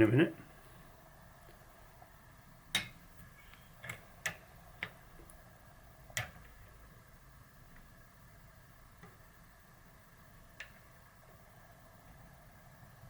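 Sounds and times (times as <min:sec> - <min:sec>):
metal tools clicking and tapping: 0:02.7 - 0:05.0.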